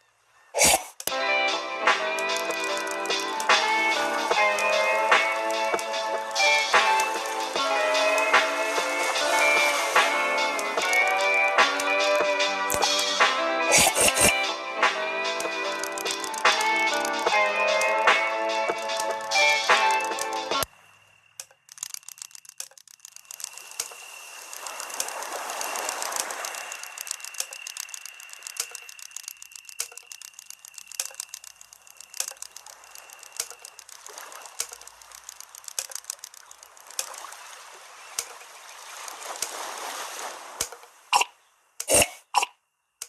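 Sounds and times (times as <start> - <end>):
waves washing onto shore: 1.9 - 20.8, 23.2 - 41.2
short clicks: 2.0 - 6.0, 10.0 - 14.4, 15.4 - 20.7, 21.4 - 37.2.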